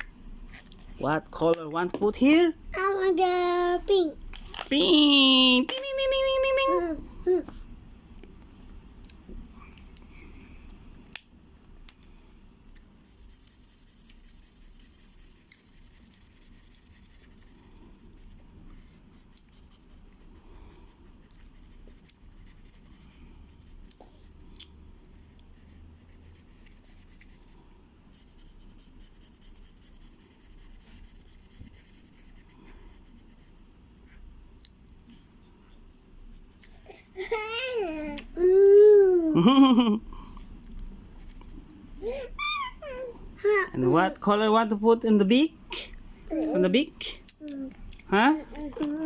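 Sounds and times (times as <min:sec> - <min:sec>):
colouring strokes scratching on paper: 0:13.0 - 0:24.5, 0:25.2 - 0:34.4, 0:35.9 - 0:37.3.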